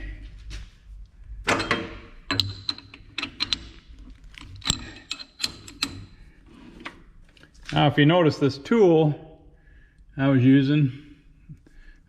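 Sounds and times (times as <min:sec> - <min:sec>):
metal tools clicking and clanking: 0:01.5 - 0:06.9.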